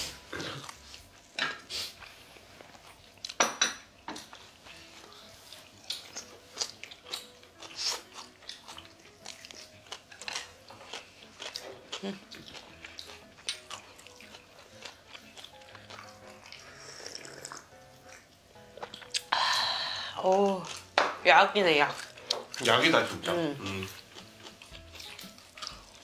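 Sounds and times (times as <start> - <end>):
chewing and biting: 0.3 - 3.4, 4.2 - 19.3, 20.2 - 21.0, 21.8 - 26.0
chopsticks and dishes clicking: 8.4 - 11.9.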